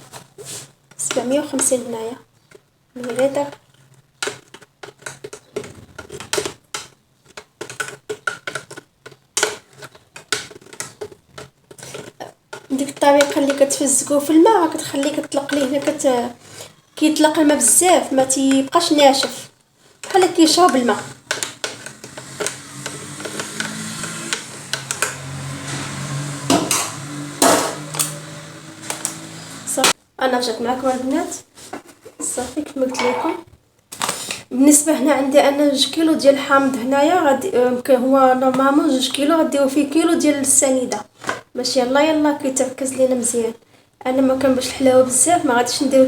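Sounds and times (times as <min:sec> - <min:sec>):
kitchen utensils clicking and tapping: 0:03.0 - 0:30.0
dishes and utensils clinking: 0:32.8 - 0:33.5
dishes clattering: 0:32.8 - 0:33.5.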